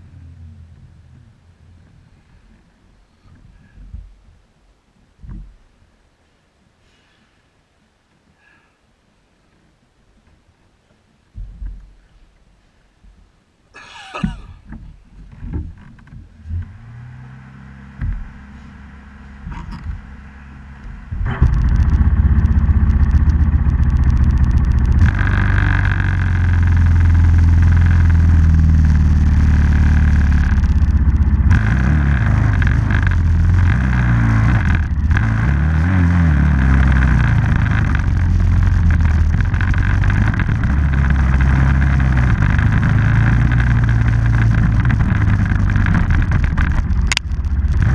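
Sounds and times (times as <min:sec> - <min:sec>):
off-road vehicle engine revving: 0:16.2 - 0:47.9.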